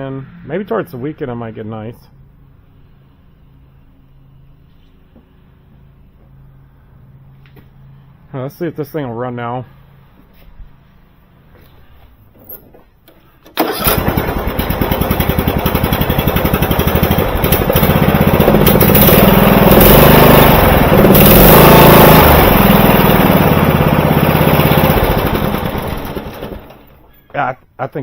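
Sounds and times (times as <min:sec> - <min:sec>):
riding mower engine running: 0:13.5 - 0:27.2.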